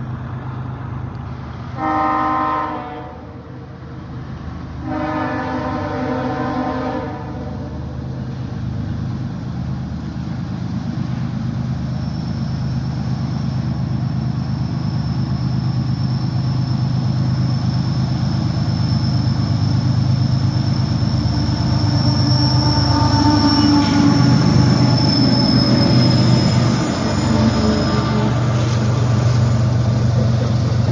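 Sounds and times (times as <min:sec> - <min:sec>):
diesel locomotive engine: 0:00.0 - 0:30.9
thin high squeal: 0:17.6 - 0:29.5.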